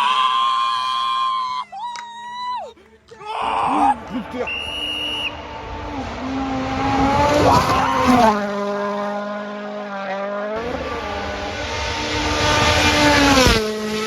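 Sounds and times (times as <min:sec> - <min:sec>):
tyre squeal: 0:02.3 - 0:05.4, 0:07.3 - 0:08.5
car engine revving: 0:03.7 - 0:14.0.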